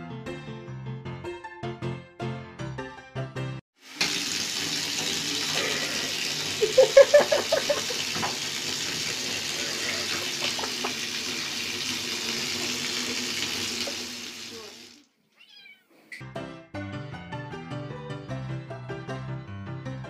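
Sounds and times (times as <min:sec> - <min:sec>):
piano music: 0:00.0 - 0:03.6, 0:16.2 - 0:20.0
water running into bathtub: 0:03.8 - 0:15.2
kitten mewing: 0:15.3 - 0:16.2.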